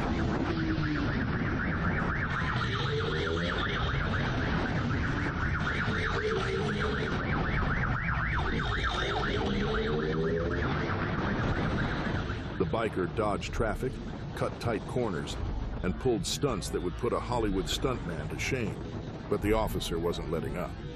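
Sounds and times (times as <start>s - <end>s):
police siren yelping: 0.0s - 12.8s.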